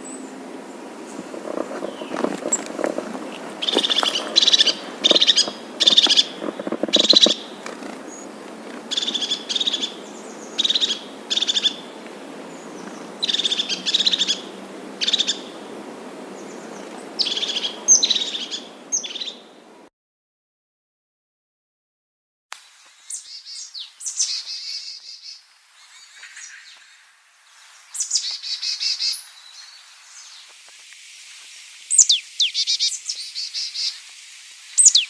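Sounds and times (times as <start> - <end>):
background hiss: 0.0 - 19.9, 22.5 - 35.0
bird calling loudly: 1.0 - 12.0, 12.6 - 15.7, 16.3 - 19.5, 34.8 - 35.0.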